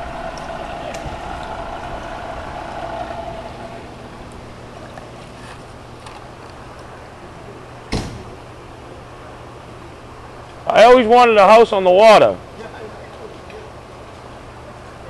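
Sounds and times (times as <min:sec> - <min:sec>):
vehicle engine humming: 0:00.0 - 0:10.6
sharp knock: 0:07.9 - 0:08.4.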